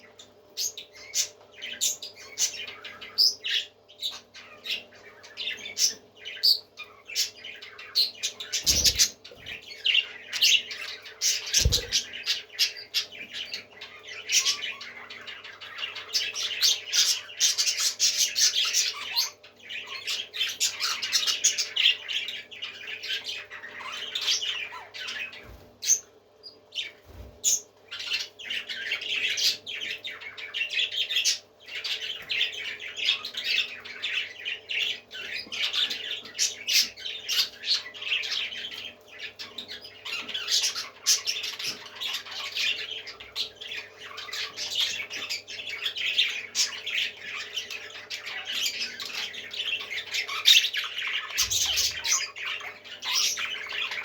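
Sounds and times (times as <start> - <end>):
parrots squawking: 6.8 - 16.1.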